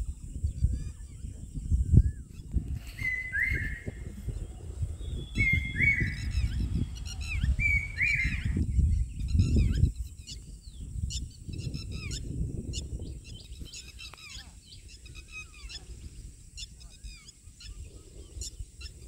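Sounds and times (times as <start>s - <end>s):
high bird chirps: 2.2s - 15.9s
bird whistled call: 2.9s - 4.4s, 5.0s - 8.6s.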